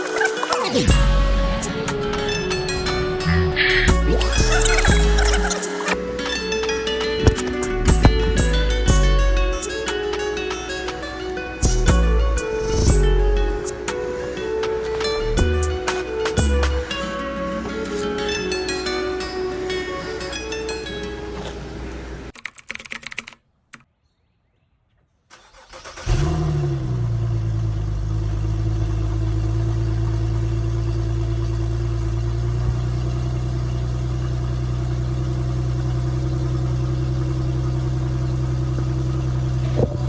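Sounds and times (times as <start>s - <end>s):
car engine starting and idling: 0.0s - 10.9s, 25.3s - 40.0s.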